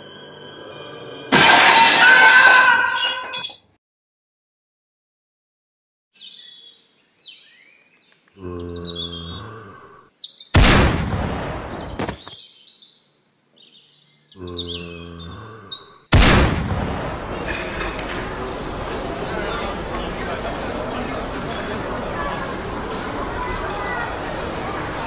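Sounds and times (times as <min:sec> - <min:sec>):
birds chirping: 0:06.2 - 0:10.6, 0:11.7 - 0:16.1
low zombie groan: 0:08.4 - 0:10.1, 0:14.4 - 0:16.0
loud rifle shot with echo: 0:10.6 - 0:12.0, 0:16.1 - 0:17.4.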